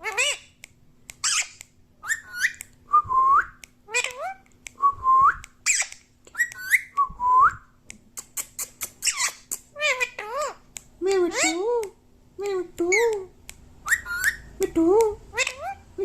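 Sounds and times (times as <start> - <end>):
parrot whistling: 1.2 - 4.3, 5.1 - 7.6, 13.8 - 14.5.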